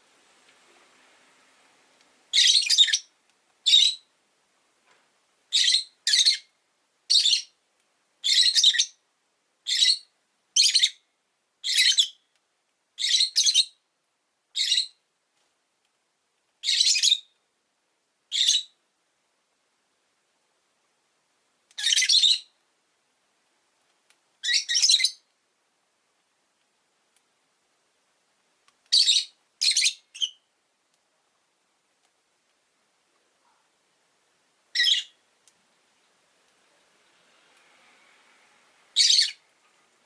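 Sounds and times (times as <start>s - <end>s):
lovebirds chirping: 2.3s - 4.1s, 5.5s - 7.6s, 8.2s - 9.0s, 9.6s - 11.0s, 11.6s - 12.3s, 13.0s - 13.8s, 14.5s - 15.0s, 16.6s - 17.4s, 18.3s - 18.8s, 21.7s - 22.6s, 24.4s - 25.3s, 28.8s - 30.5s, 34.7s - 35.2s, 39.0s - 39.5s.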